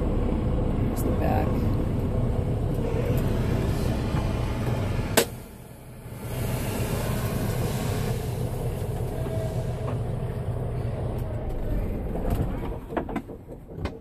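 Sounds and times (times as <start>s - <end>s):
truck engine rumble: 0.0s - 14.0s
hiss: 2.8s - 10.2s.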